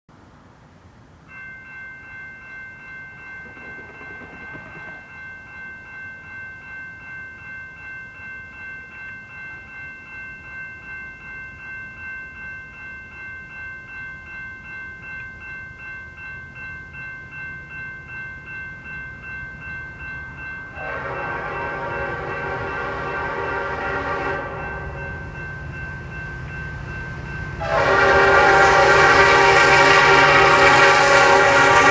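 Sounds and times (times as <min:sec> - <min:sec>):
locomotive air horn blast: 0:20.8 - 0:25.1, 0:27.6 - 0:31.9.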